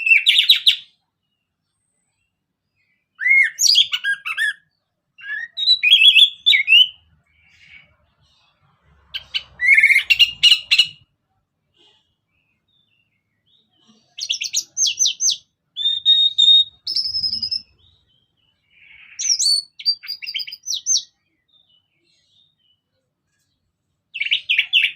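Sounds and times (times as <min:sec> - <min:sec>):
bird singing whistled notes and trills: 0:00.0 - 0:11.1, 0:11.9 - 0:24.9.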